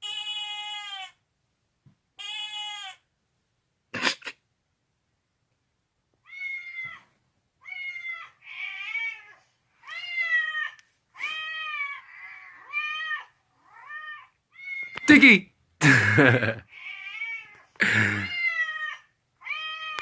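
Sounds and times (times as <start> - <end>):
cat meowing: 0.0 - 1.2, 2.2 - 3.0, 6.2 - 15.1, 16.7 - 20.0.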